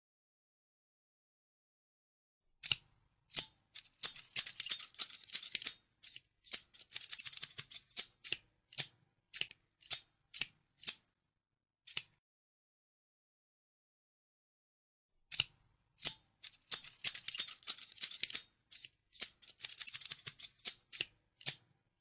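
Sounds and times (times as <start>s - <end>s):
scissors snipping: 2.6s - 11.1s, 11.9s - 12.2s, 15.3s - 21.7s.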